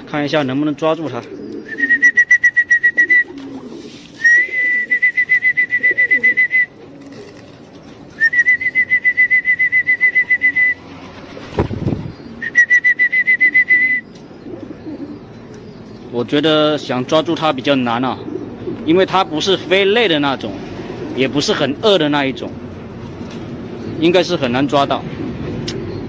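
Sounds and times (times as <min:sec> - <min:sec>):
high whistle-like trill: 0:04.2 - 0:06.7.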